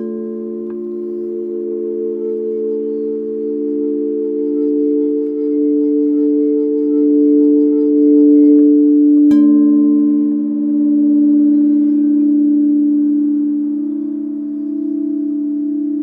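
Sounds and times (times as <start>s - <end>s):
singing bowl struck: 0.0s - 1.7s, 9.3s - 12.7s
singing bowls ringing: 0.0s - 16.0s.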